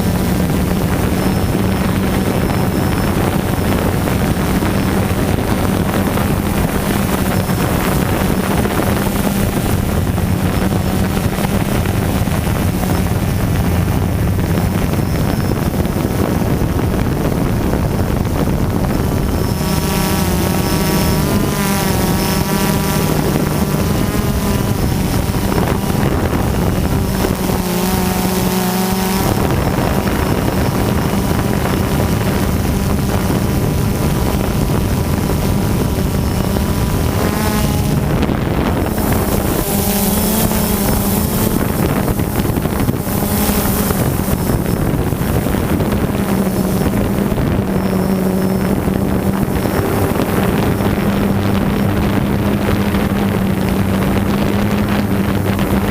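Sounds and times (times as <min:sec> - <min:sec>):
drone propellers whirring: 0:00.0 - 0:55.9
wind buffeting microphone: 0:00.0 - 0:55.9.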